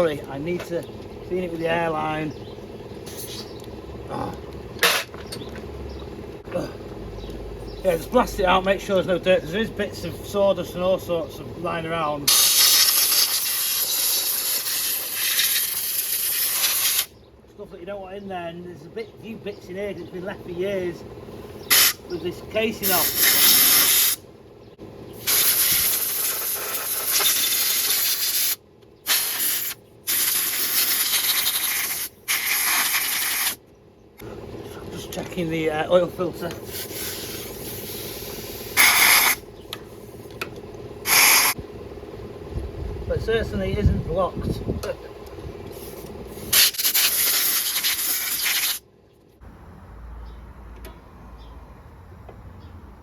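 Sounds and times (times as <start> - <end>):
compressed air blow gun hissing: 12.3 - 17.1, 21.6 - 22.0, 22.8 - 24.2, 25.2 - 33.6, 36.6 - 39.4, 41.0 - 41.6, 45.7 - 48.8.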